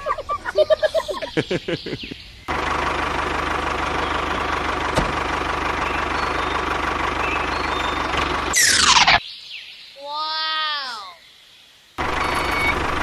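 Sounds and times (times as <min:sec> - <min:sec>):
engine idling: 0:02.5 - 0:08.8, 0:12.0 - 0:13.0.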